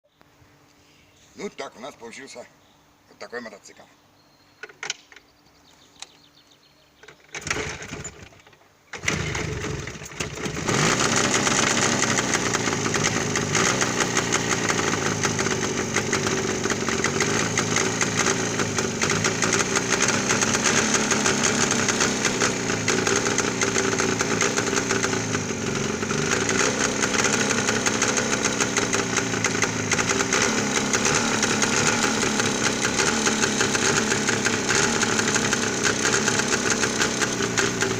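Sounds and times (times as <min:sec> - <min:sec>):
motorcycle engine running: 0:09.0 - 0:37.9.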